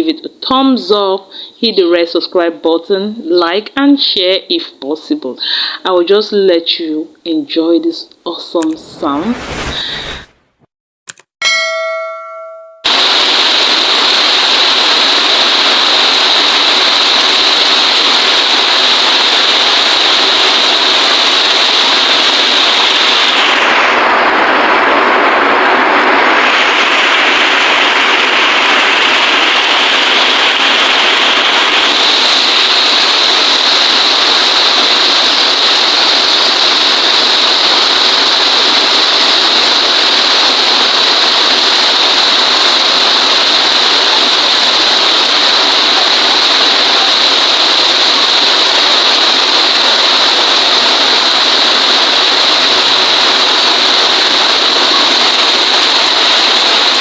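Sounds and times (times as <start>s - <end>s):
heavy rain falling: 12.9s - 57.0s.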